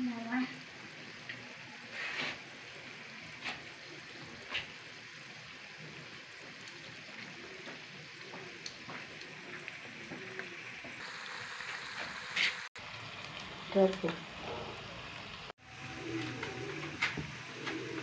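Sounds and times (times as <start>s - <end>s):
potatoes sizzling in oil: 0.0s - 18.0s
oil crackles: 3.4s - 15.4s.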